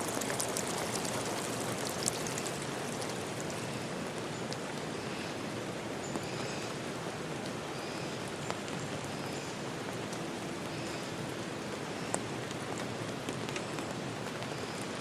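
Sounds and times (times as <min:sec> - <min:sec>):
louder single raindrops: 0:00.0 - 0:04.9
steady rain falling: 0:00.0 - 0:15.0.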